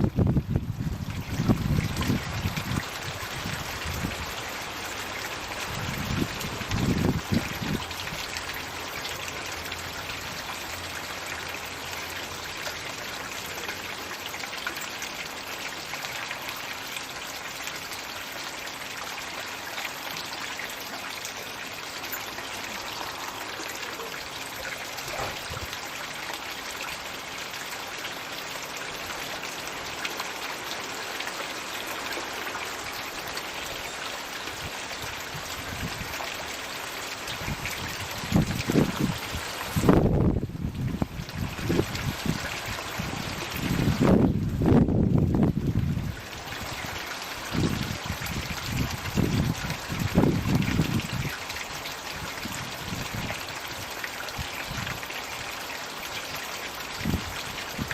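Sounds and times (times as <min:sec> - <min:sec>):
fountain water trickling into pond: 0:00.0 - 0:57.9.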